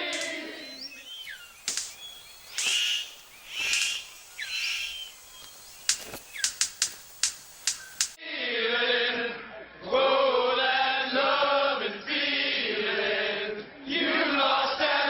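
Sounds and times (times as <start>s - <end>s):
sharp clicks or snaps: 0.0s - 0.6s, 1.6s - 8.2s
bird harsh calls: 0.0s - 8.2s
bird whistled gliding notes: 0.0s - 8.2s.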